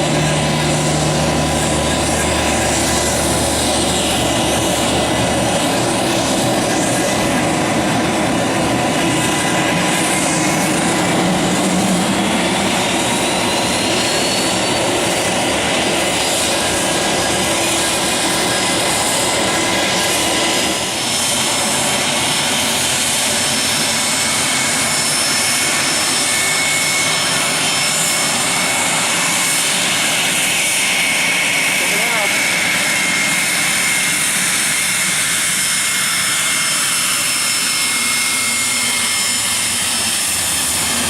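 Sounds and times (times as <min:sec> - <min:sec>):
jet engine roar and whine: 0:00.0 - 0:41.0.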